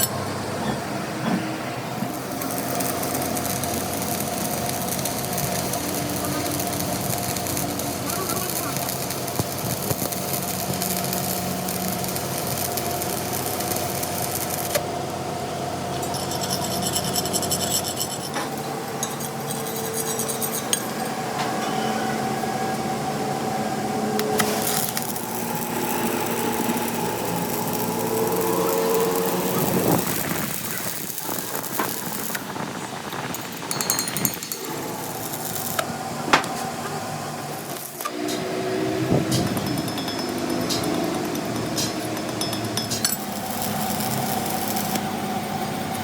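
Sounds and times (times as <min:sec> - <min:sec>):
workshop machine humming: 0:00.0 - 0:46.0
machine rattle: 0:02.0 - 0:14.8, 0:24.3 - 0:32.5, 0:33.2 - 0:35.9.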